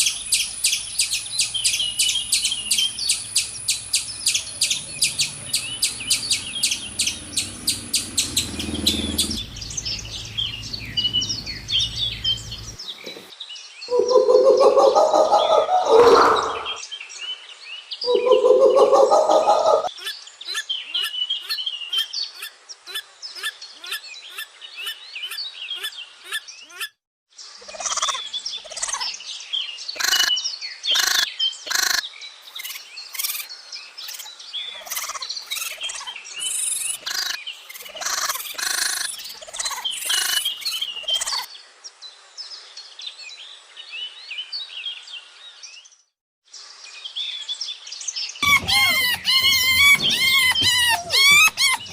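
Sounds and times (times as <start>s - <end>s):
lower bird call: 0.0s - 13.3s, 13.9s - 16.8s, 48.4s - 51.9s
birds chirping and calling: 0.0s - 16.9s, 18.0s - 27.0s, 27.6s - 29.2s, 29.9s - 41.5s, 48.4s - 51.9s.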